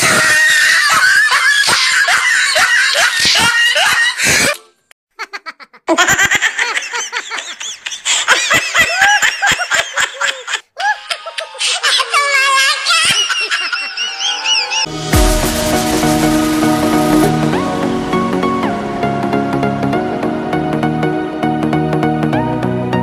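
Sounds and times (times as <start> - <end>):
high-pitched laughter: 0.0 - 14.9.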